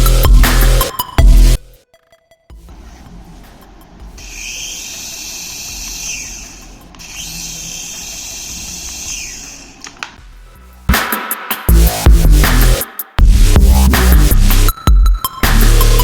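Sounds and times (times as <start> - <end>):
high-pitched toy electric motor: 4.2 - 9.9.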